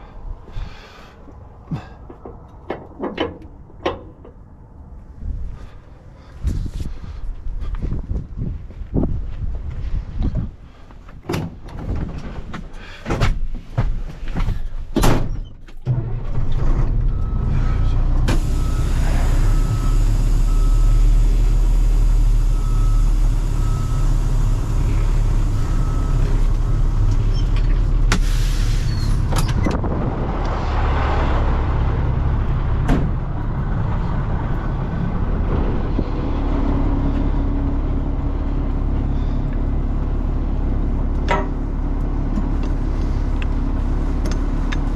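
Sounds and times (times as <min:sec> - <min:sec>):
knocks and clanks: 0:01.6 - 0:04.5, 0:32.8 - 0:33.3, 0:41.2 - 0:41.6
truck engine running: 0:16.0 - 0:44.9.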